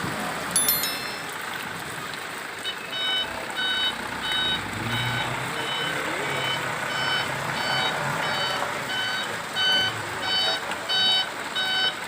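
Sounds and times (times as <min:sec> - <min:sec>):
truck reversing alarm beeping: 0:02.6 - 0:12.0.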